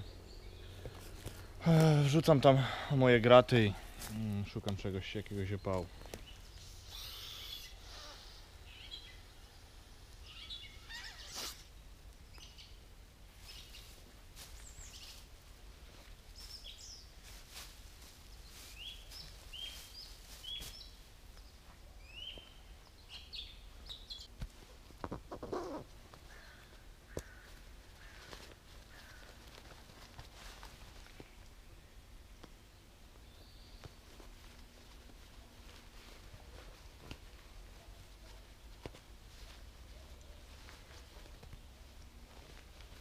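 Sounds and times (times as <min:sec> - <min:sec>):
small birds chirping: 0:00.0 - 0:01.7, 0:03.7 - 0:15.3, 0:16.3 - 0:17.2, 0:18.2 - 0:24.3, 0:31.0 - 0:36.8
faint rustling: 0:24.2 - 0:31.6, 0:33.4 - 0:43.0.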